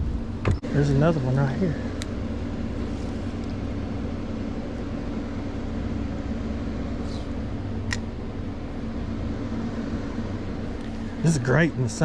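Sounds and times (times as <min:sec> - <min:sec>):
boat engine humming: 0:00.0 - 0:12.0
sharp click: 0:07.8 - 0:08.1.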